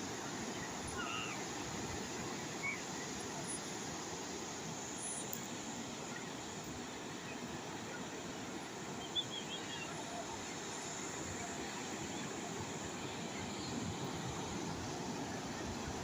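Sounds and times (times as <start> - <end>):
sea waves washing on shore: 0.0 - 16.0.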